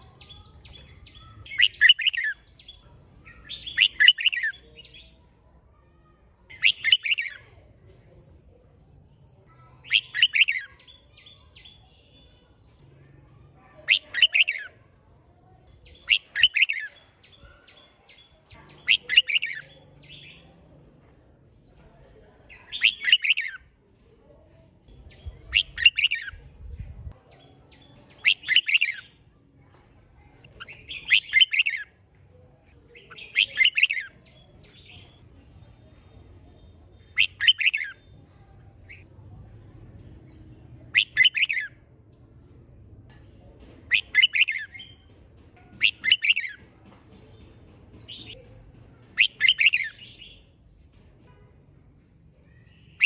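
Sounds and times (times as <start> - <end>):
bird singing short phrases: 0.0 - 7.8, 9.1 - 12.8, 15.8 - 20.5, 22.7 - 23.6, 36.5 - 39.0, 43.9 - 45.0.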